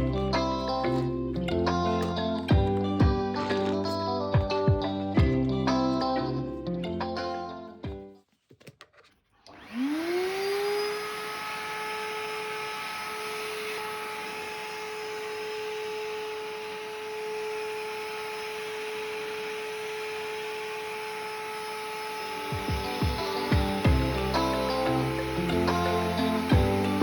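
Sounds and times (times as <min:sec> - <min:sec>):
vacuum cleaner motor running: 0:09.5 - 0:27.0.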